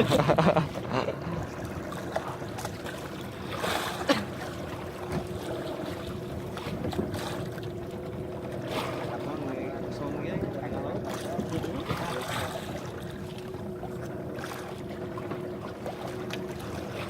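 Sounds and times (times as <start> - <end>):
boat engine running: 0.0 - 17.0
water rushing: 0.0 - 17.0
wind: 0.0 - 17.0.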